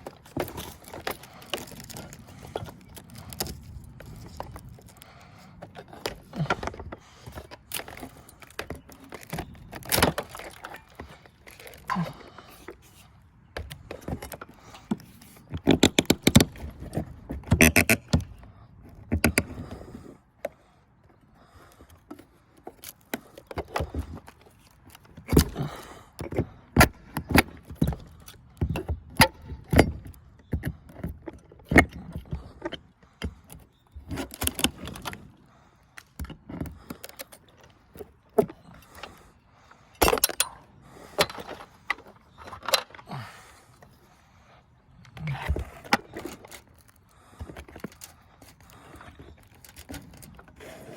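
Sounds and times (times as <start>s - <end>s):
crowbar prying wood: 13.6s - 20.0s, 40.0s - 43.2s.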